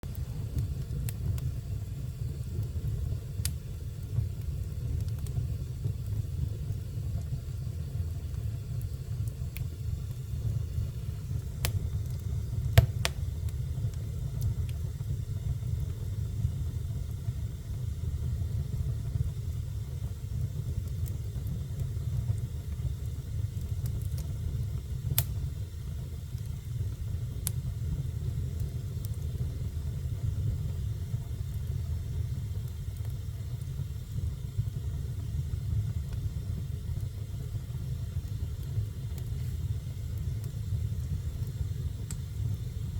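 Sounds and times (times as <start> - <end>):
crackles and pops of fire: 0.0 - 42.9
fire burning in fireplace: 0.0 - 42.9.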